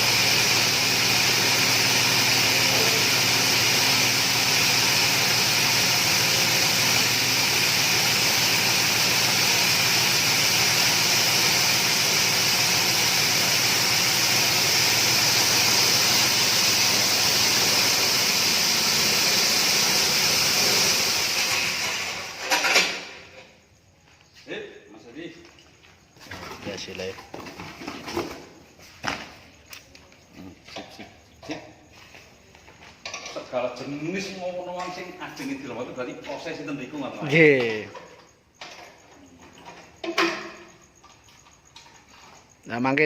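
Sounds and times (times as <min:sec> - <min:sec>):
grass chopper machine running: 0:00.0 - 0:23.1.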